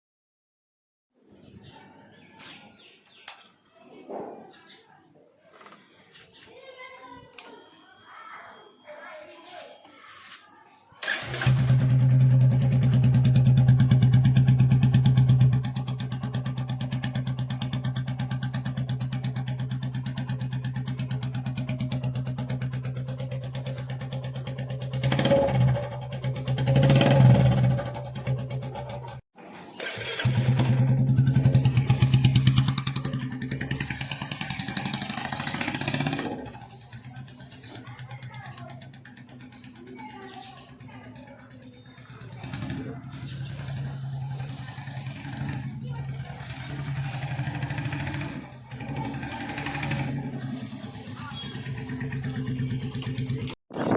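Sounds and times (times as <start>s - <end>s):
motorcycle engine idling: 11.0s - 29.2s, 30.0s - 53.6s.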